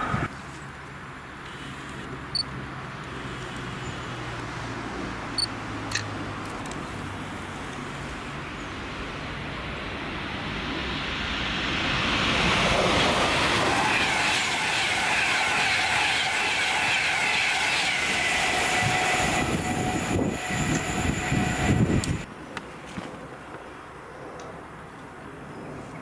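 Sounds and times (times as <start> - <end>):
high whine: 10.0 - 22.3
train wheels rumbling on rail: 10.6 - 22.3.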